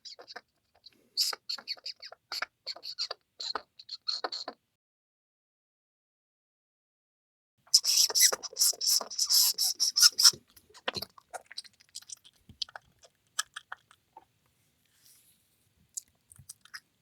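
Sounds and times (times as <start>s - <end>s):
mouse squeaking and clicking: 0.0s - 4.6s, 7.7s - 13.8s.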